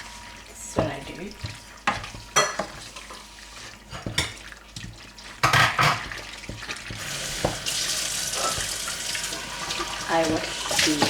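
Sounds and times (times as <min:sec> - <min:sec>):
running water: 0:03.2 - 0:11.0
utensil scraping a pan: 0:05.2 - 0:11.0.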